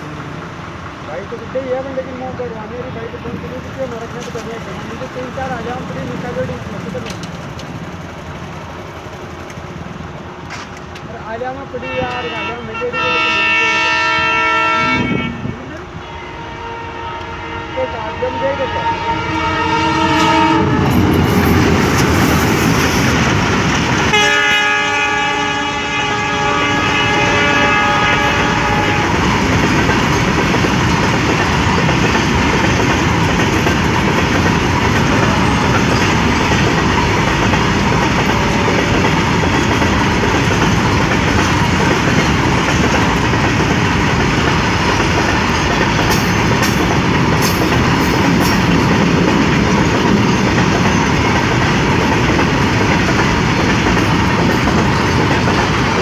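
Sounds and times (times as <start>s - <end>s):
train wheels clattering on rails: 3.2s - 11.4s, 20.1s - 56.0s
locomotive horn: 11.8s - 21.1s, 24.1s - 29.4s.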